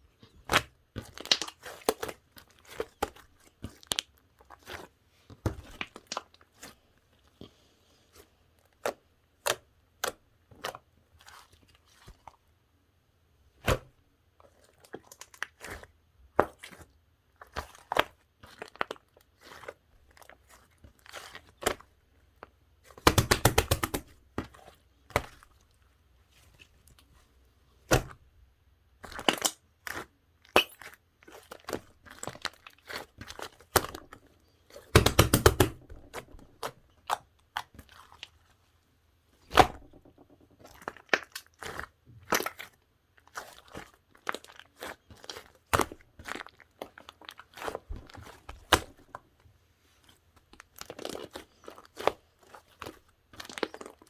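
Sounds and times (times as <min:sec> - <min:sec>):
rapid crackling of slime: 0:00.2 - 0:07.3, 0:14.5 - 0:27.2, 0:28.9 - 0:38.6, 0:39.4 - 0:54.0.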